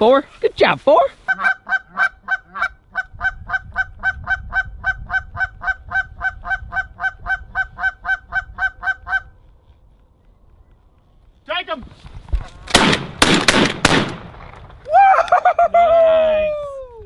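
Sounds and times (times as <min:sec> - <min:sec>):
goose call honking clucks: 0:01.3 - 0:09.3.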